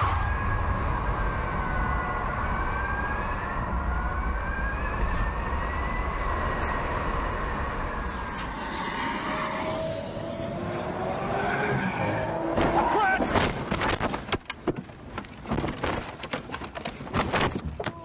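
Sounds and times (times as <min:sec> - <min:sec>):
tyres rumbling on road: 0:05.6 - 0:18.0.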